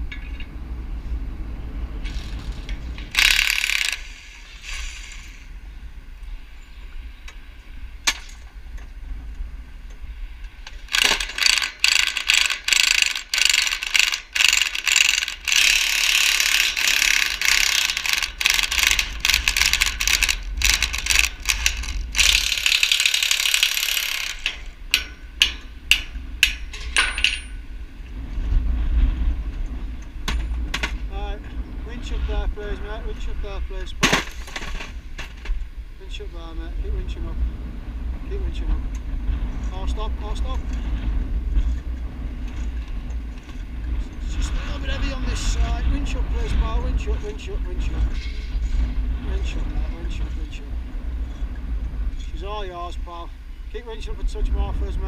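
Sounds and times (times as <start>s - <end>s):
winch ratchet clicking: 2.1s - 4.3s, 10.8s - 27.5s.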